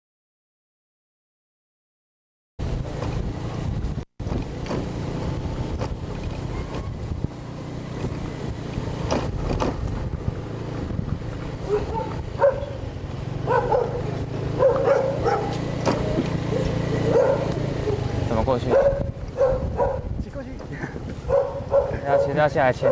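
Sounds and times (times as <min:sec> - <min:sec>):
low engine rumble: 0:02.6 - 0:22.9
dog barking: 0:06.5 - 0:06.9, 0:11.6 - 0:15.7, 0:16.5 - 0:18.1, 0:18.7 - 0:20.1, 0:21.2 - 0:22.9.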